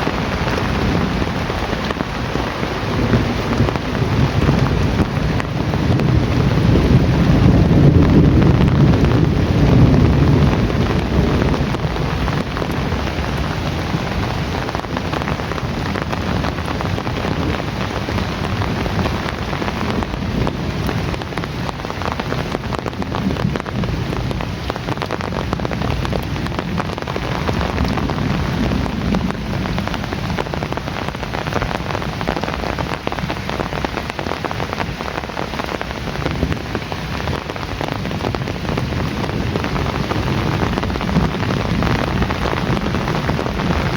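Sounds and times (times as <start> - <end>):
heavy rain falling: 0.0 - 43.9
low rumble of thunder: 0.0 - 43.9.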